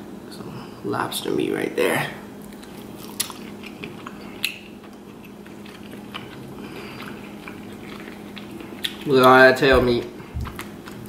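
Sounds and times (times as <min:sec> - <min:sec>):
close chewing of soft food: 0:02.4 - 0:11.0.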